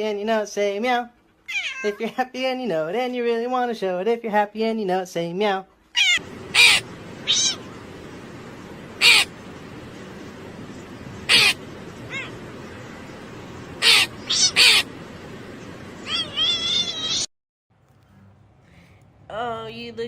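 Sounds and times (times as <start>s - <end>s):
cat meowing: 1.5s - 2.0s, 6.0s - 7.7s, 11.3s - 12.4s, 13.8s - 14.9s, 16.0s - 17.3s.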